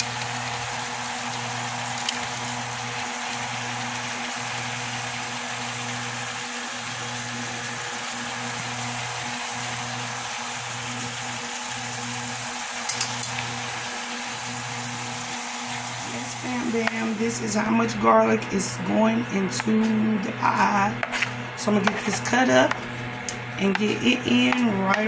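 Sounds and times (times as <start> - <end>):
chicken sizzling in butter: 0.0 - 17.2
metal tongs clicking on pot: 12.9 - 13.4.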